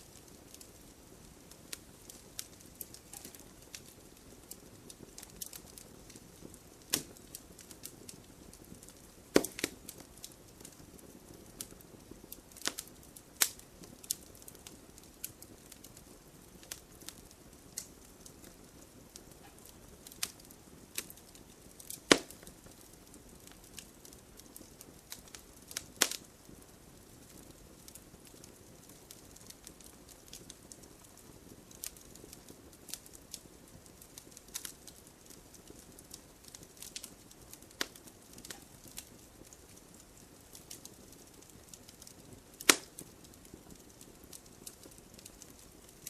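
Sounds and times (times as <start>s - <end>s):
fire crackling: 0.0s - 46.0s
sharp pops: 9.4s - 9.8s, 21.9s - 22.5s, 42.6s - 42.9s.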